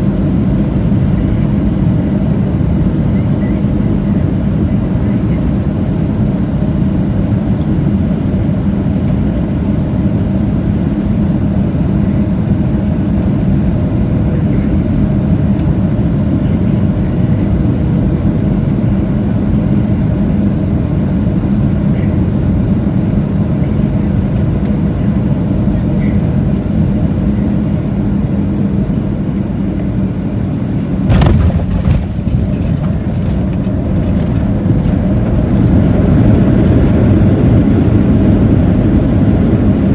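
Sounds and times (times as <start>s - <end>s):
airplane cabin engine noise: 0.0s - 39.9s
runway rumbling and rattling: 0.0s - 39.9s
wheels thumping on runway: 31.1s - 36.0s.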